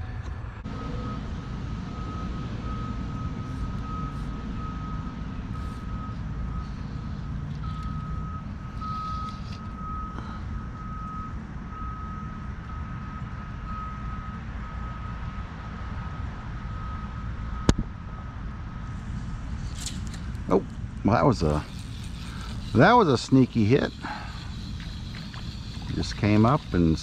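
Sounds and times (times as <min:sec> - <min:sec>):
steady low rumble: 0:00.0 - 0:12.8, 0:16.4 - 0:27.0
high electronic beeping: 0:21.4 - 0:27.0.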